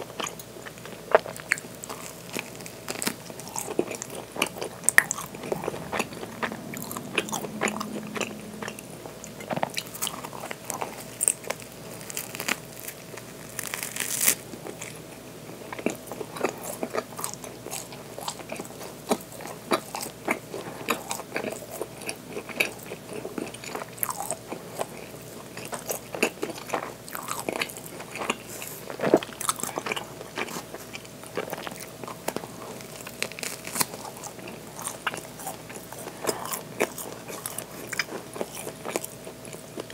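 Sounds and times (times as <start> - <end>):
chewing bread: 0.0 - 39.9
bread crunching: 0.2 - 6.2, 9.6 - 15.0, 25.6 - 39.9.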